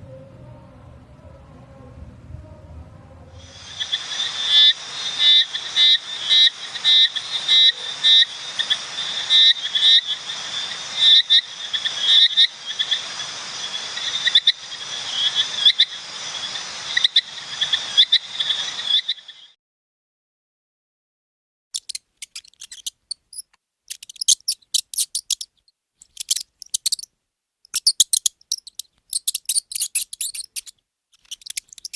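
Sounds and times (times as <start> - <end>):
steady background hiss: 3.4 - 18.9
frog croaking: 3.4 - 19.6, 27.7 - 31.9.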